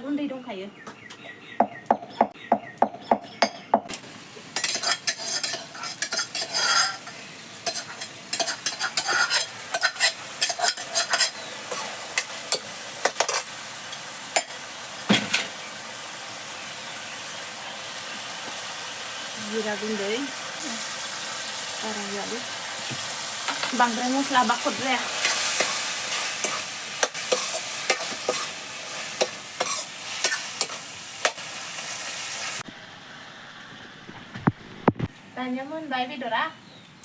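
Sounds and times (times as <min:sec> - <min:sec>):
meat sizzling in a pan: 0:03.9 - 0:35.1
spatula tapping pan: 0:04.6 - 0:13.5, 0:24.8 - 0:28.5
spatula scraping pan: 0:04.6 - 0:14.6, 0:23.4 - 0:31.4.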